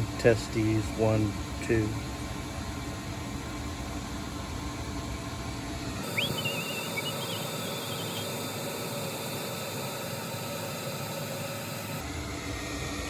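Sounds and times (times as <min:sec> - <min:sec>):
furnace motor humming: 0:00.0 - 0:13.0
high wavering squeal: 0:06.0 - 0:12.0.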